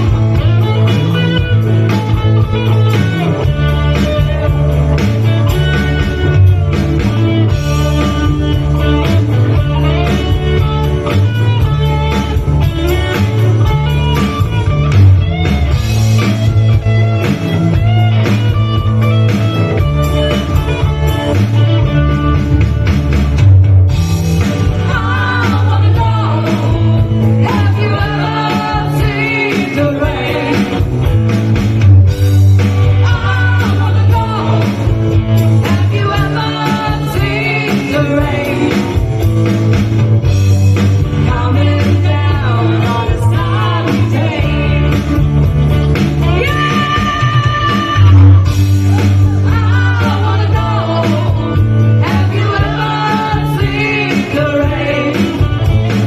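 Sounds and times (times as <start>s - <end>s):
rock band playing: 0.0s - 56.0s
person singing: 24.6s - 31.1s, 32.8s - 39.2s, 41.1s - 56.0s.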